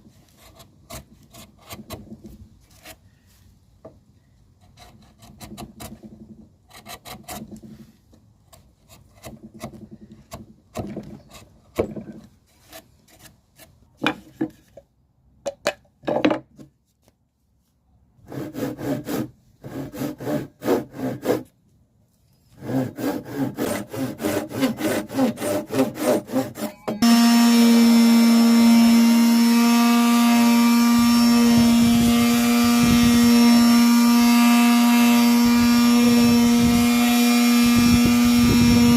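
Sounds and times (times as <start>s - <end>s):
hand tools rasping wood: 4.6s - 13.7s, 18.2s - 21.5s, 22.5s - 38.9s
power tool humming: 24.8s - 38.9s.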